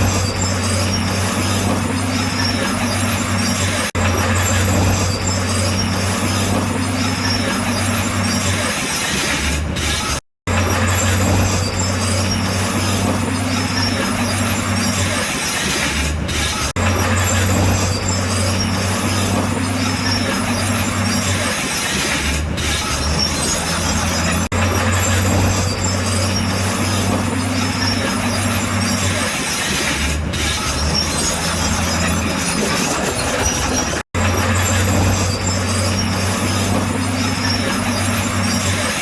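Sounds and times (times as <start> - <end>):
bulldozer diesel engine running: 30.0 - 39.0.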